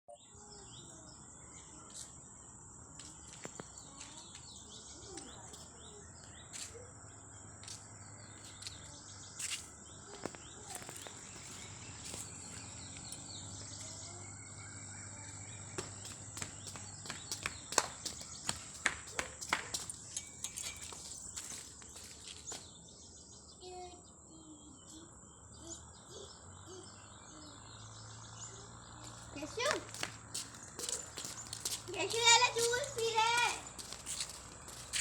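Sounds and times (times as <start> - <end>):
faint bird chirps: 3.1 - 16.1, 20.2 - 29.8.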